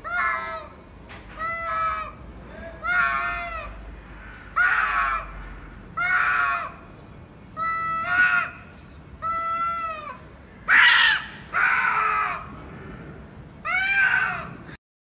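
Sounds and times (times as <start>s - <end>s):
cat yowling: 9.2s - 12.4s, 13.6s - 14.6s.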